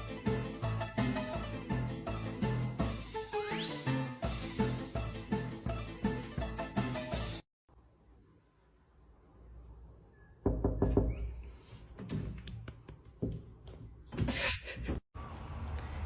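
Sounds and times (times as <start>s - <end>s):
knocks and thumps: 11.9s - 15.0s.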